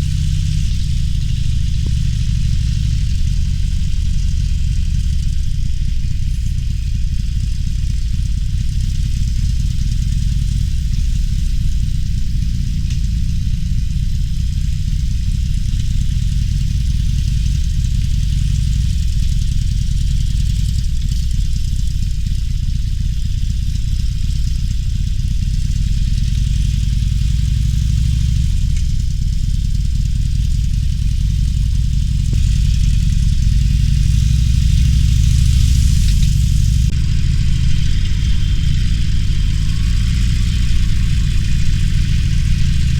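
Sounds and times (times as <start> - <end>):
wind and road noise: 0.0 - 18.0, 25.9 - 42.9
motorcycle engine running: 0.0 - 42.9.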